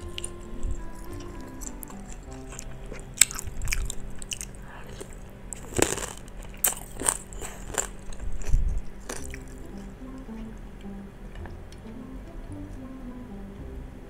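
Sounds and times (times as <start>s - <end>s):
wet chewing and biting: 0.0s - 10.5s.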